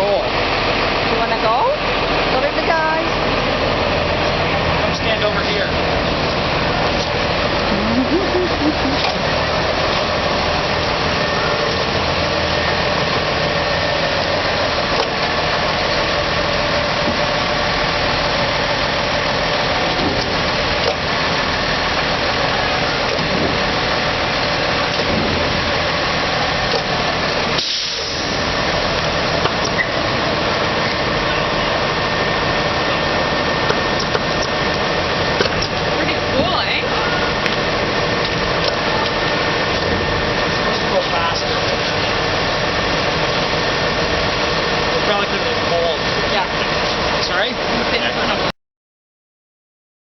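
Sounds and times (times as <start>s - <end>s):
diesel truck engine running: 0.0s - 48.5s
hydraulic lift working: 0.0s - 48.5s
short hiss: 27.6s - 28.4s.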